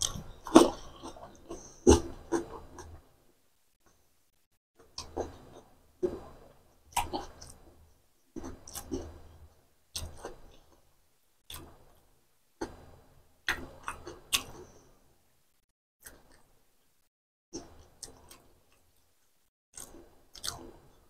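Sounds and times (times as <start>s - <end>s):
person chewing with mouth smacks: 0.0s - 3.0s, 4.9s - 7.7s, 8.4s - 10.8s, 13.4s - 14.8s, 17.6s - 19.0s, 19.8s - 20.8s.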